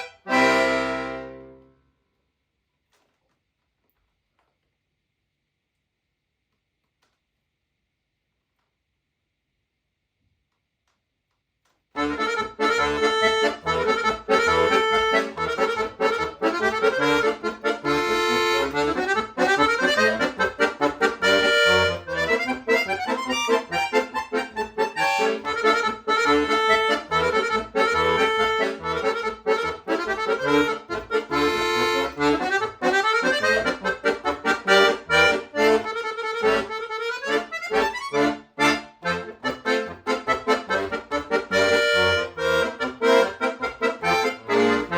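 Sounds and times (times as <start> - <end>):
lively accordion piece: 0.0 - 1.8, 12.0 - 44.9.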